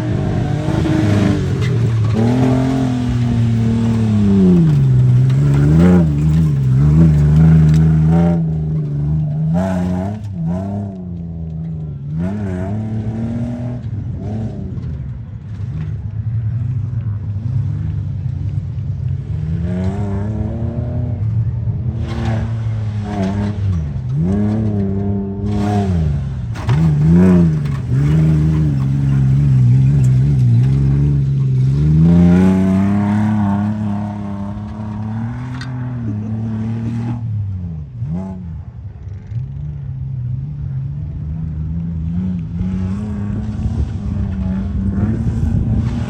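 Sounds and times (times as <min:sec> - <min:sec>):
truck engine revving hard: 0:00.0 - 0:11.2, 0:19.4 - 0:38.4.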